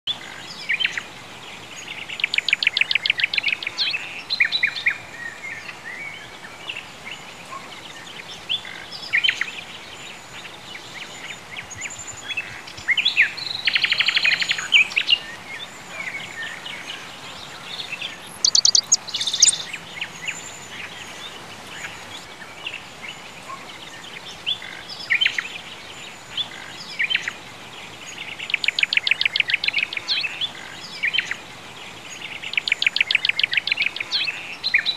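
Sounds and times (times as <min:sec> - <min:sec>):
faint steady hiss: 0:00.1 - 0:34.9
songbirds trilling: 0:00.1 - 0:34.9
short bird chirps: 0:18.3 - 0:19.7.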